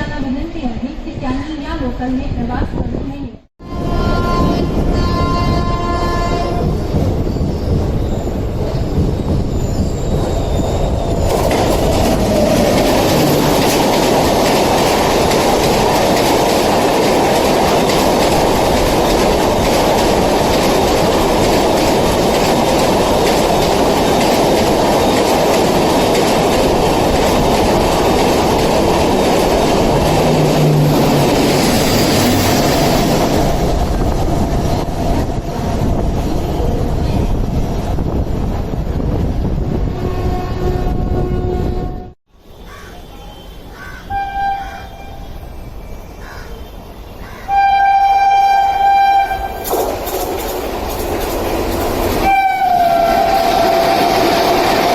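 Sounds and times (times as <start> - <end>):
train passing at speed: 0.0 - 54.9
wheels clattering over rail joints: 6.8 - 35.8, 49.6 - 54.9
wheel squeal: 9.4 - 11.3.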